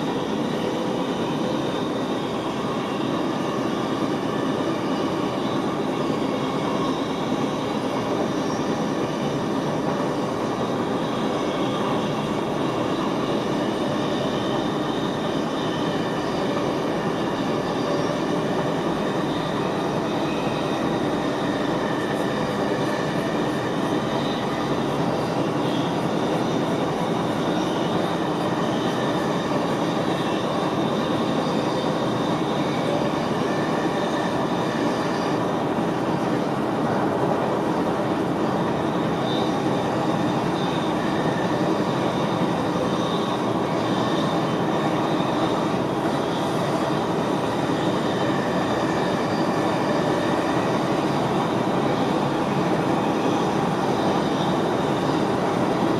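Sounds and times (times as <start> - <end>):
train wheels rumbling on rail: 0.0 - 55.9.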